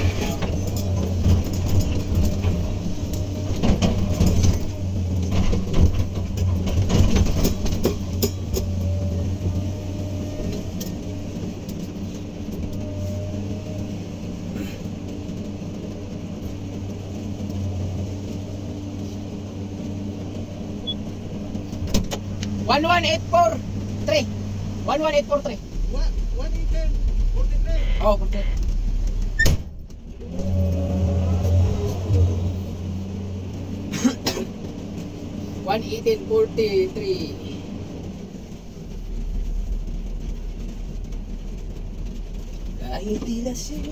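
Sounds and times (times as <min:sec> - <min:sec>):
knocks and rattles: 0:00.0 - 0:09.6
excavator diesel engine humming: 0:00.0 - 0:43.9.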